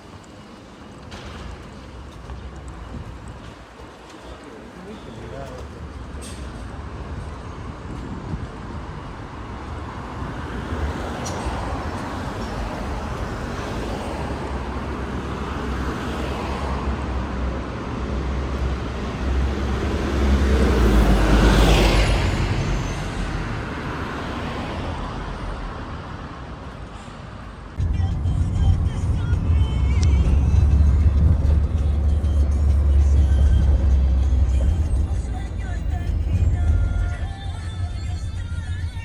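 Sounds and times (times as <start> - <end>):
traffic rumble: 0.0 - 39.0
vehicle passing close: 27.8 - 39.0.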